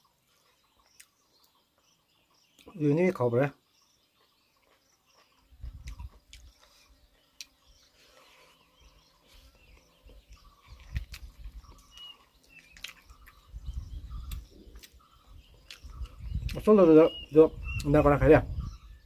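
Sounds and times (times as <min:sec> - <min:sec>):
bird chirping: 0:00.0 - 0:19.0
person chewing food: 0:00.4 - 0:01.6, 0:04.2 - 0:08.4, 0:09.3 - 0:16.2.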